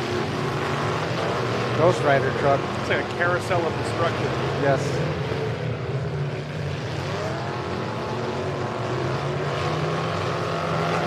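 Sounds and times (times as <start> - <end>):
engine revving up: 0.0 - 11.0
truck engines running loud: 0.0 - 11.0.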